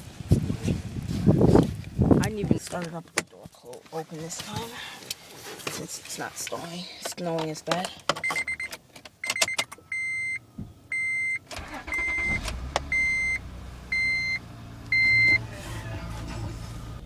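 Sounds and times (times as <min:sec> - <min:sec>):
dashboard warning chime: 0:08.2 - 0:15.5
car engine starting and idling: 0:08.4 - 0:17.0.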